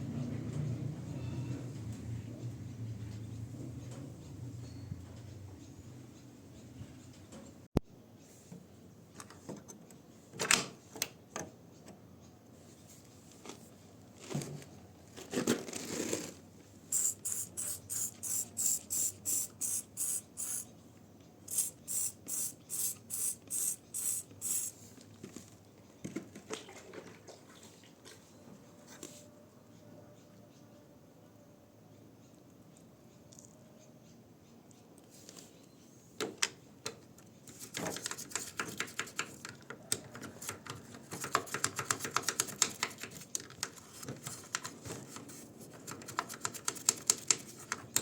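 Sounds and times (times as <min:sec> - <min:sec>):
spray bottle squirting: 0:16.9 - 0:20.7, 0:21.5 - 0:24.8.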